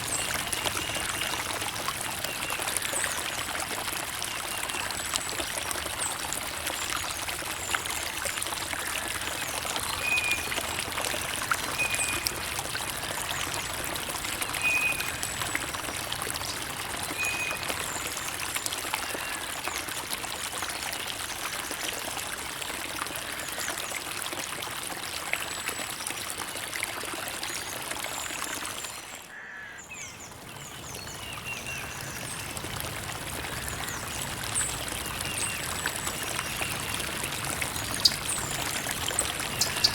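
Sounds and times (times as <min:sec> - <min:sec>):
creek water burbling over stones: 0:00.0 - 0:29.4, 0:30.0 - 0:39.9
bird chirping: 0:39.5 - 0:39.9.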